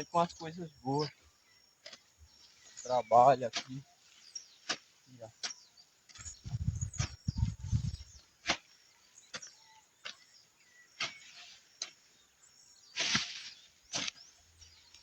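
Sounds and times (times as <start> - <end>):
birds chirping faintly: 0.0 - 15.0
hoe chopping into soil: 4.6 - 7.4, 8.4 - 10.3, 10.9 - 12.1, 12.8 - 14.4
low rumble: 6.4 - 8.0.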